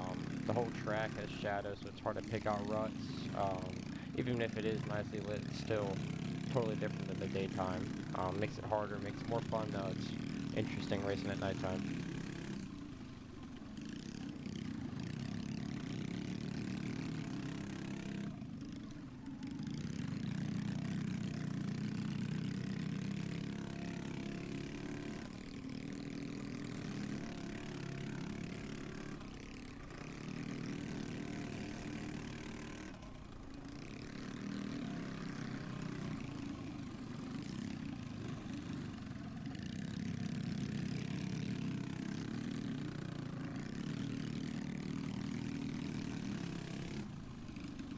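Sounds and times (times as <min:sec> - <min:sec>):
dirt bike engine revving: 0:00.0 - 0:19.0, 0:19.6 - 0:47.1.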